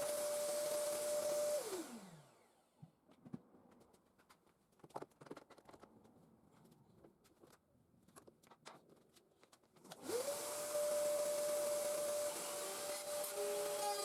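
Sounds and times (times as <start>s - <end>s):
belt grinder motor whining: 0.0s - 2.5s, 10.0s - 14.0s.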